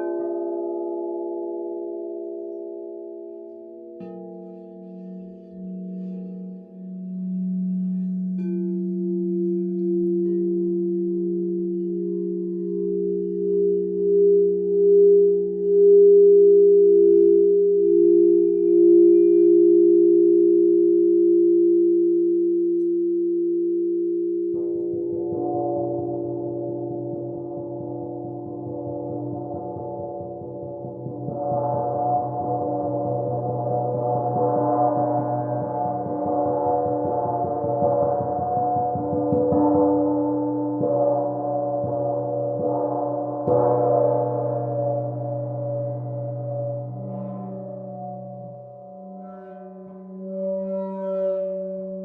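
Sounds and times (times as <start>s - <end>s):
crystal singing bowls ringing: 0.0s - 22.0s
gong struck with mallet: 24.6s - 48.8s.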